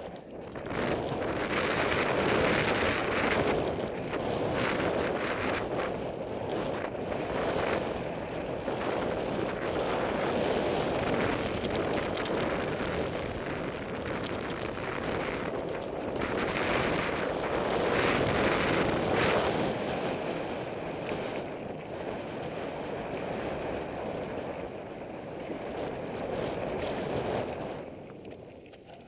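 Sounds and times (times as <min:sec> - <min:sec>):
bike clicks and rattles: 0:00.0 - 0:19.5
wind rushing over microphone: 0:00.0 - 0:28.7.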